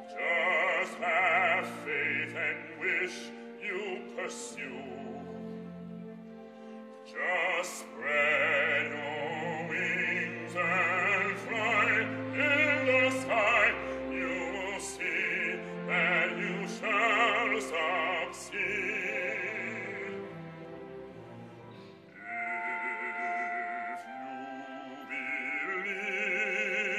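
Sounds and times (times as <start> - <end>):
operatic solo singing: 0.0 - 5.5, 7.1 - 20.7.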